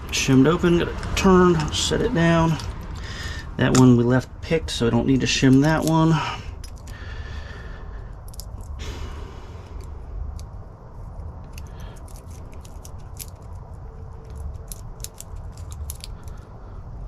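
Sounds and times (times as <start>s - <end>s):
steady low rumble: 0.0s - 17.0s
small metallic clicks and scrapes: 5.3s - 7.0s, 8.1s - 8.8s, 9.6s - 16.6s.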